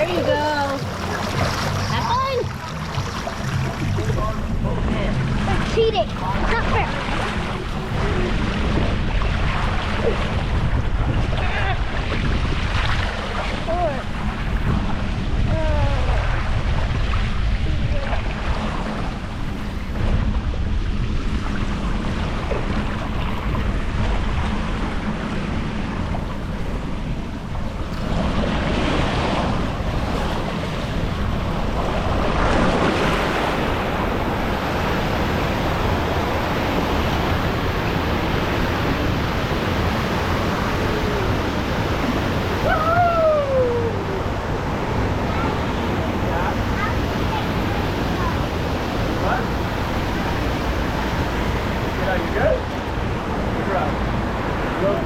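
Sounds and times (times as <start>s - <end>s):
water rushing down a slide: 0.0s - 19.0s
wind buffeting microphone: 0.0s - 55.0s.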